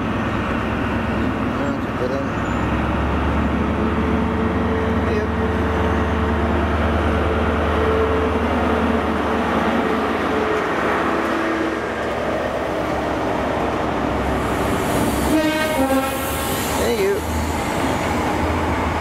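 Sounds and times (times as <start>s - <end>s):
diesel engine drone: 0.0s - 19.0s
train coaches rumbling: 0.0s - 19.0s
two-note train horn: 15.3s - 16.4s.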